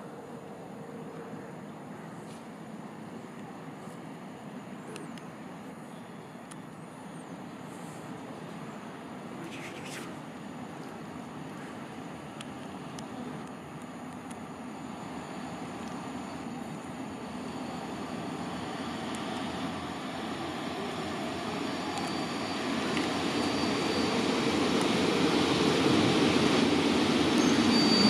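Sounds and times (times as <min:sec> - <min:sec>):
brakes squealing: 0:27.4 - 0:28.0.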